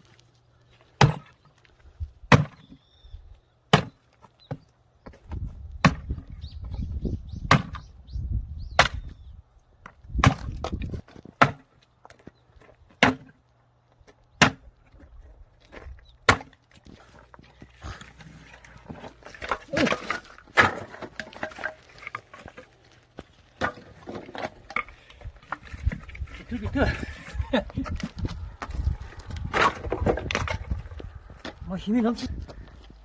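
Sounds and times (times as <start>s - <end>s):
axe chopping firewood: 1.0s - 1.5s, 2.2s - 2.8s, 3.7s - 4.6s, 5.3s - 6.3s, 7.5s - 7.8s, 8.8s - 9.2s, 9.8s - 11.8s, 12.9s - 13.4s, 14.4s - 14.8s, 15.7s - 16.7s, 17.8s - 22.6s, 23.6s - 26.4s, 29.4s - 30.8s.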